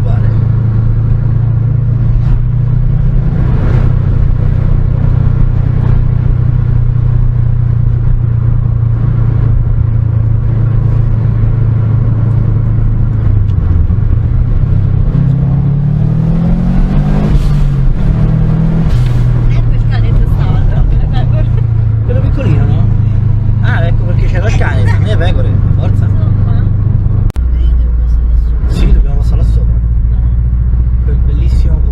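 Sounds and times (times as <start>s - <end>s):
car engine running: 0.0s - 31.9s.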